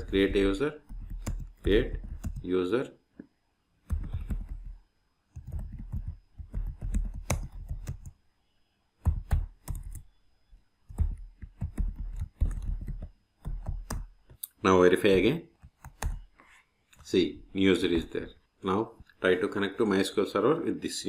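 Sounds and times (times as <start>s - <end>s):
computer keyboard typing: 0.0s - 2.5s, 3.8s - 8.2s, 9.0s - 10.1s, 10.9s - 14.1s, 15.6s - 16.3s.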